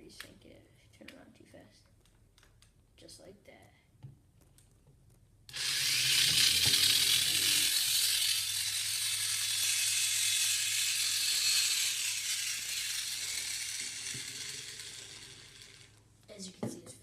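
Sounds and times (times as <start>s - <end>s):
small electric motors whirring: 5.5s - 16.0s.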